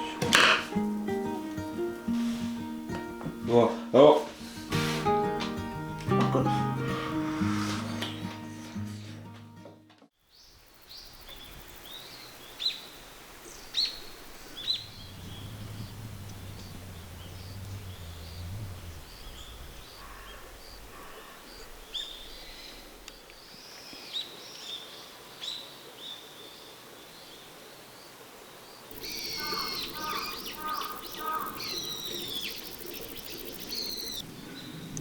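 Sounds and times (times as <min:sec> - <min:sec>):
birds chirping: 0:10.4 - 0:24.8, 0:28.9 - 0:35.0
faint low hum: 0:14.0 - 0:23.3
sharp down-slurred bird calls: 0:28.9 - 0:35.0.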